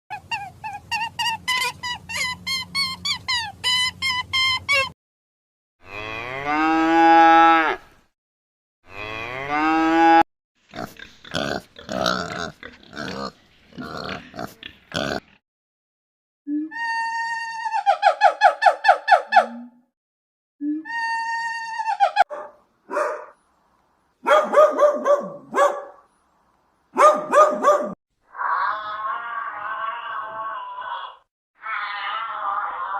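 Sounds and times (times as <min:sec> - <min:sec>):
dog whining: 0:00.1 - 0:04.9
cow mooing: 0:05.8 - 0:07.8, 0:08.9 - 0:10.2
dog barking: 0:22.3 - 0:23.4, 0:24.2 - 0:26.1, 0:27.0 - 0:28.0.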